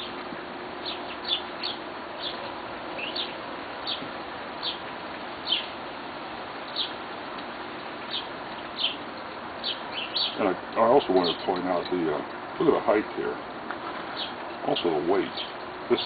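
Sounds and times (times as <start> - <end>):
bird chirping: 0.8 - 5.8, 6.6 - 7.0, 8.0 - 9.0, 9.6 - 11.5, 14.0 - 16.0.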